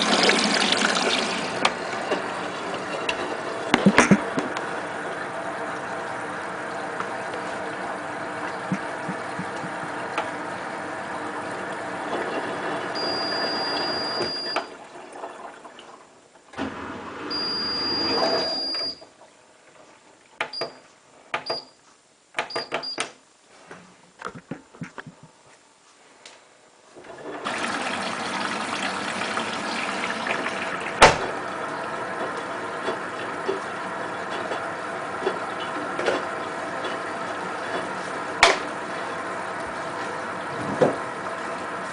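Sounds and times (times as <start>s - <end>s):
washing machine motor hum: 0.0s - 20.7s, 26.8s - 41.9s.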